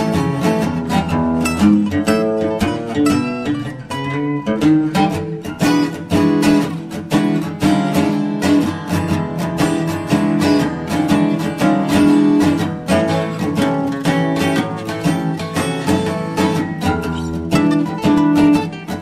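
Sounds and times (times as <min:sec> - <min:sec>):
acoustic guitar plucked and strummed: 0:00.0 - 0:19.0.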